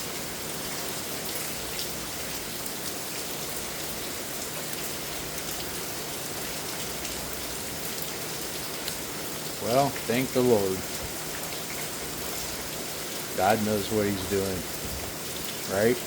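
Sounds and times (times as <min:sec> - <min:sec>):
heavy rain pouring: 0:00.0 - 0:16.0
sharp raindrop ticks: 0:04.4 - 0:05.8, 0:07.9 - 0:09.1.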